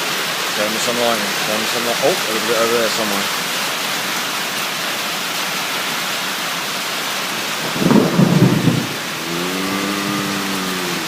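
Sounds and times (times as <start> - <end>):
rain hissing: 0.0 - 11.0
thunder rumble: 7.6 - 11.0.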